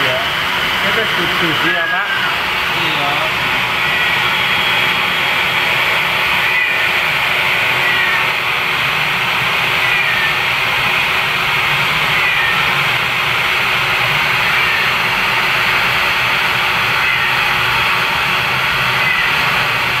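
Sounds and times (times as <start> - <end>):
hairdryer blowing: 0.0 - 20.0
cat meowing faintly: 1.6 - 2.4, 3.8 - 4.3, 6.4 - 7.0, 7.6 - 8.4, 9.8 - 10.4, 12.1 - 12.7, 14.4 - 15.0, 17.0 - 17.5, 19.0 - 19.6.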